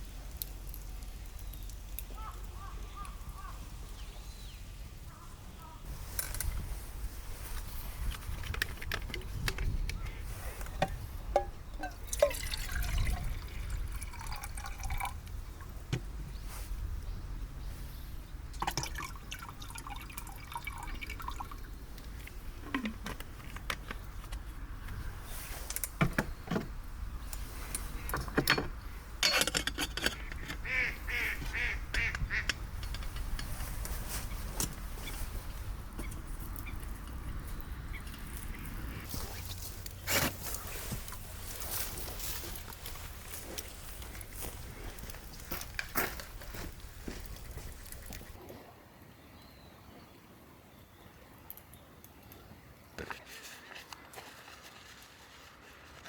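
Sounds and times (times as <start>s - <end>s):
water pouring and trickling: 6.1s - 15.9s, 18.5s - 23.1s, 32.7s - 48.5s.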